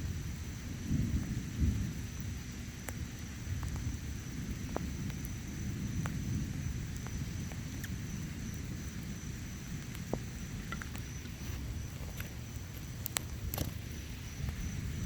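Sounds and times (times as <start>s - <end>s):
distant thunder rumble: 0.0s - 15.0s
faint drip-like ticks: 0.0s - 15.0s
rain: 0.0s - 15.0s.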